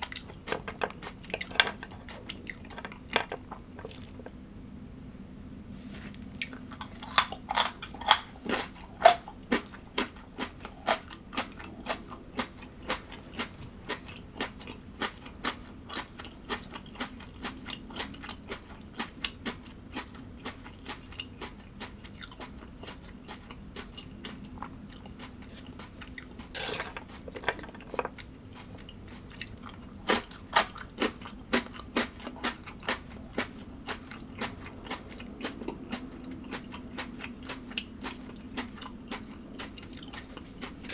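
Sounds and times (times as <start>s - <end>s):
chewing crunchy food: 0.0s - 4.4s, 5.9s - 40.9s
steady low hum: 0.0s - 17.9s.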